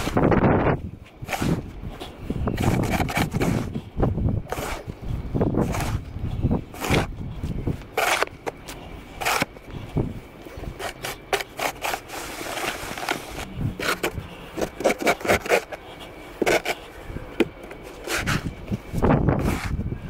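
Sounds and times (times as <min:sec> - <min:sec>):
snow shovel scraping snow: 0:01.2 - 0:01.7, 0:02.5 - 0:03.8, 0:04.5 - 0:05.0, 0:05.6 - 0:06.1, 0:06.7 - 0:07.1, 0:07.9 - 0:08.4, 0:09.1 - 0:09.5, 0:10.6 - 0:15.8, 0:17.8 - 0:19.9.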